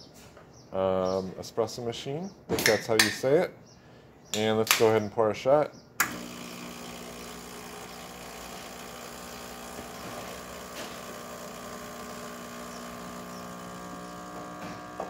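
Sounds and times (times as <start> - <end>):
espresso machine pump humming: 6.0 - 15.0.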